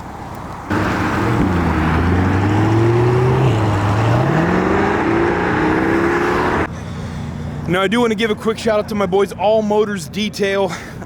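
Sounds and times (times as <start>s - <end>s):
car engine accelerating: 0.7s - 6.7s.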